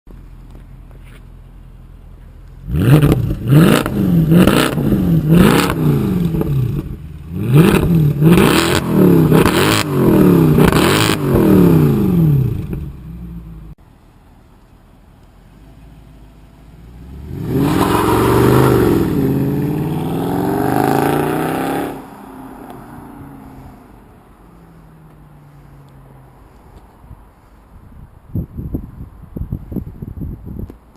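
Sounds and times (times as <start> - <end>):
car engine revving: 2.6 - 13.7, 16.0 - 26.6
car accelerating hard: 2.7 - 6.8, 7.4 - 12.8, 16.8 - 24.0.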